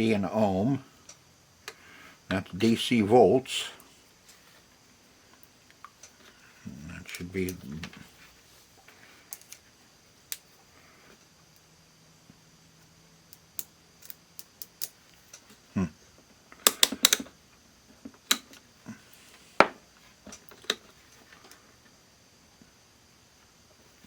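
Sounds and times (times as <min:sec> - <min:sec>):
multimeter test leads clicking: 0:16.6 - 0:17.3.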